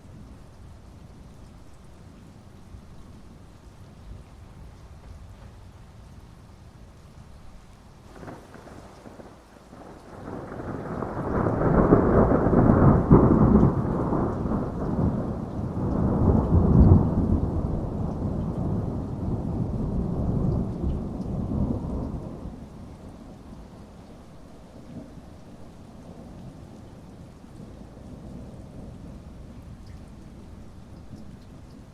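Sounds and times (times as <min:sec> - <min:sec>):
steady rain: 0:00.0 - 0:31.9
thunder rumbling: 0:08.1 - 0:23.8.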